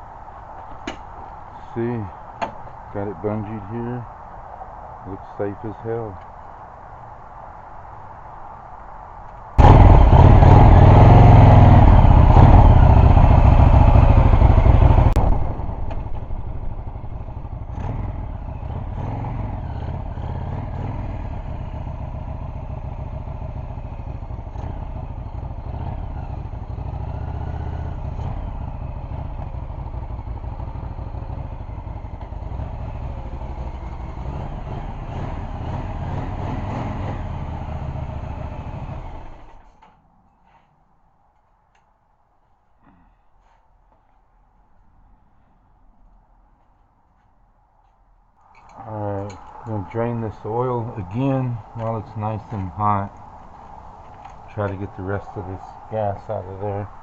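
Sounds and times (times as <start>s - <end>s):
motorcycle engine starting and idling: 9.6s - 40.6s, 48.4s - 57.0s.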